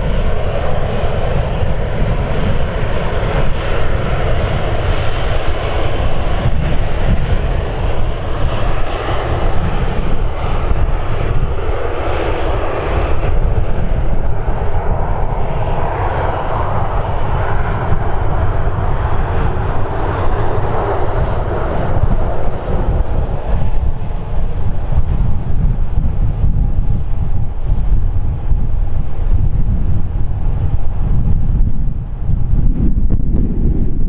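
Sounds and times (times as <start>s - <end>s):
aircraft engines roaring: 0.0s - 34.0s
wind rumbling on microphone: 0.0s - 34.0s.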